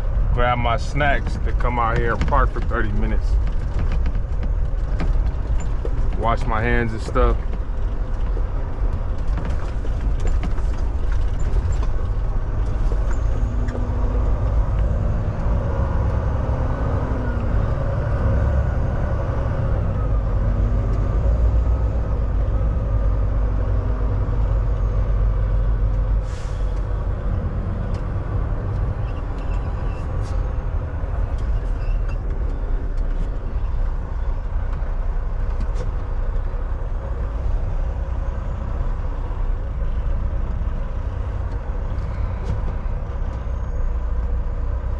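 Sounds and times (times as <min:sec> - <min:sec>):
diesel truck engine rumbling: 0:00.0 - 0:44.9
air brakes hissing: 0:26.2 - 0:26.9.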